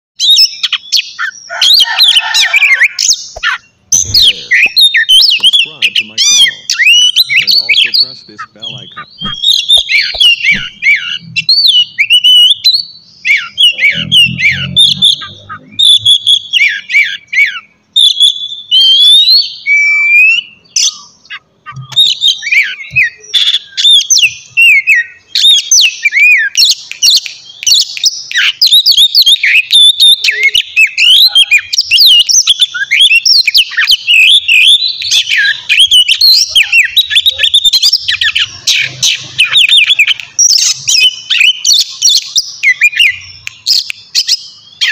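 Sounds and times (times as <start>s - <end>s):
bird singing whistled song: 0.2s - 44.9s.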